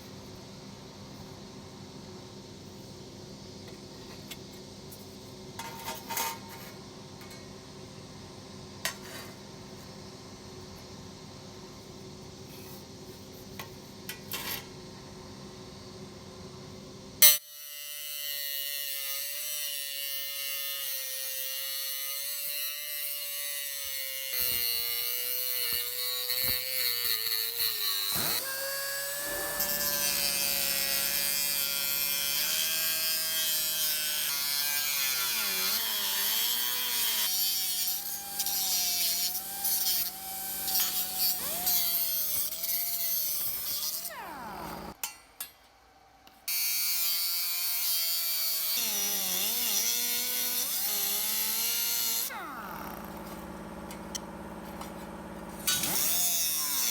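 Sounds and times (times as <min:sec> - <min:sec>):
power tool whining on sheet metal: 0:19.9 - 0:45.0, 0:46.5 - 0:56.9.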